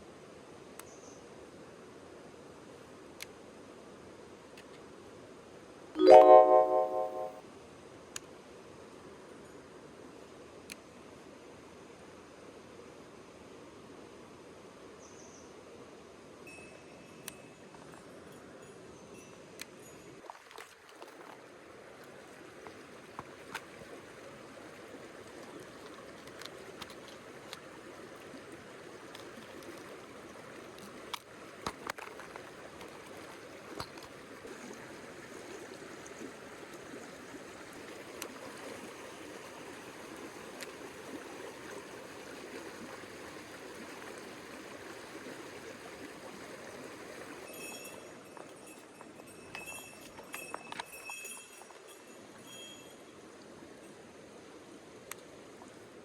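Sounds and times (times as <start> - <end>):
short high tones: 6.0 - 7.4
stream water rushing: 20.2 - 49.1.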